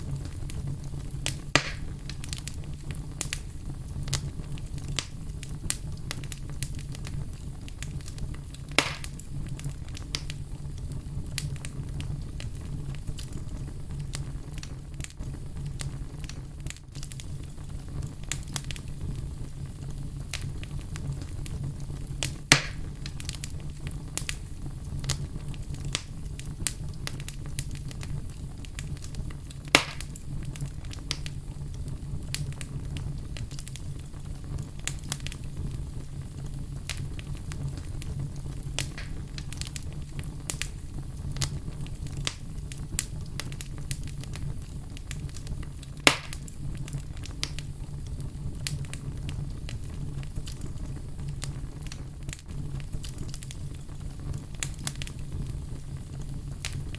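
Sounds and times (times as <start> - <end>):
fire crackling: 0.0 - 56.9
low rumble of flames: 0.0 - 56.9
sharp loud pops: 1.6 - 1.9, 8.8 - 9.1, 22.5 - 22.8, 29.8 - 30.0.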